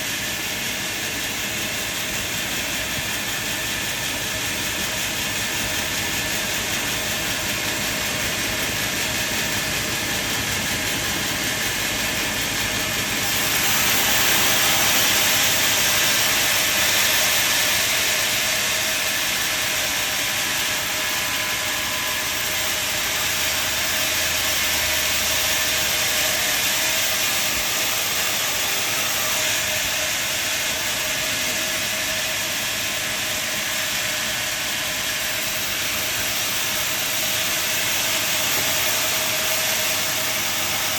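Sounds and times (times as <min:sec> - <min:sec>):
saw rushing through wood: 0:00.0 - 0:40.9.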